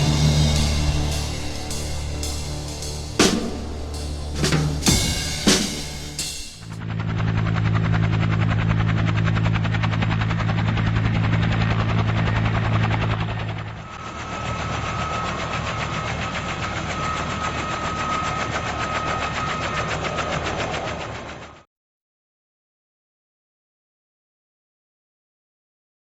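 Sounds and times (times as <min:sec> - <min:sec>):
steady high whine: 0:00.0 - 0:06.8
engine running with low hum: 0:00.0 - 0:18.1.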